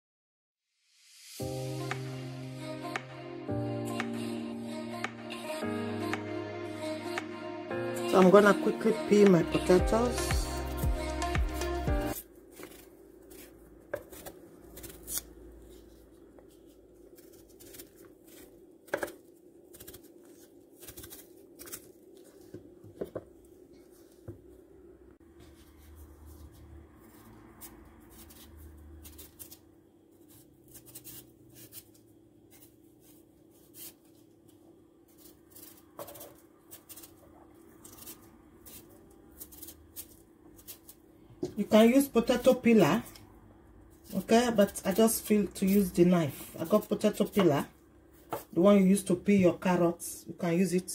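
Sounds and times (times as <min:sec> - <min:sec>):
knife scraping potato skin: 0:11.5 - 0:22.6, 0:25.5 - 0:41.1, 0:44.0 - 0:47.6.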